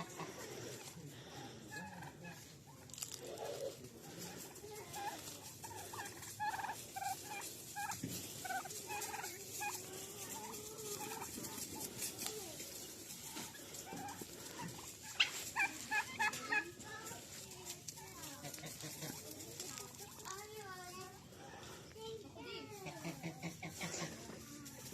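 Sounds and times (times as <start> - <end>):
turkey gobbling: 0.0 - 1.0, 1.6 - 17.4, 18.0 - 20.3, 22.7 - 24.5
turkeys calling: 0.0 - 20.3, 22.7 - 24.9.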